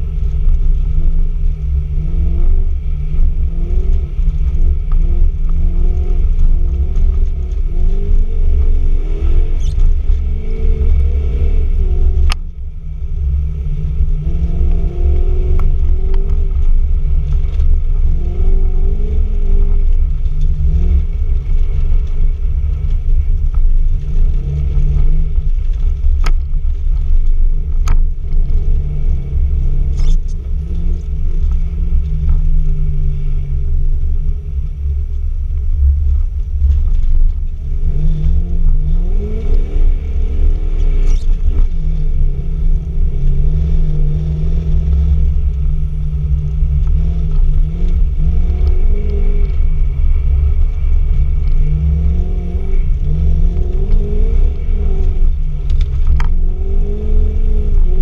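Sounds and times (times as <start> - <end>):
car engine revving: 0.0 - 58.0
low rumble of tyres: 0.0 - 58.0.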